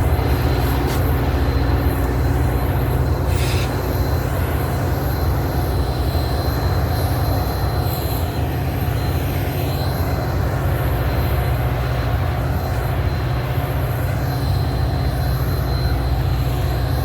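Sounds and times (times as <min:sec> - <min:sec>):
train rumbling on rails: 0:00.0 - 0:17.0
high wheel squeal: 0:00.2 - 0:04.4.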